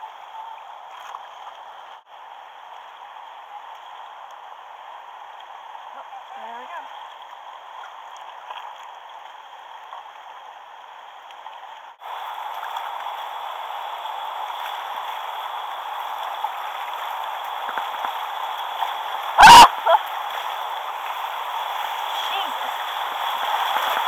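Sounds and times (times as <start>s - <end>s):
river water rushing: 12.0s - 24.0s.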